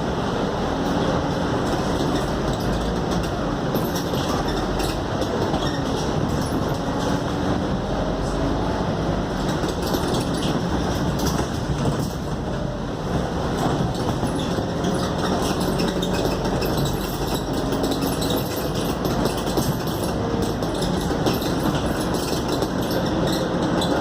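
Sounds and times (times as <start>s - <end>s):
bus body rattling: 0.0s - 24.0s
bus engine and road noise: 0.0s - 24.0s.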